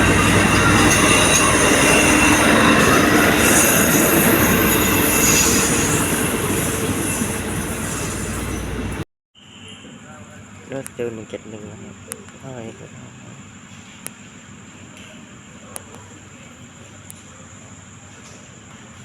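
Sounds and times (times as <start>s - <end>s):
train rolling on rails: 0.0s - 9.0s
wheels squealing: 0.0s - 9.0s.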